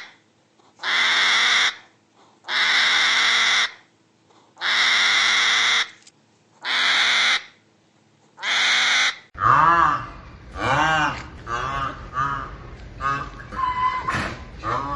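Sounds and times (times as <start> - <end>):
bird harsh calls: 2.5 - 3.8, 4.6 - 6.0, 6.6 - 7.6, 8.4 - 9.3.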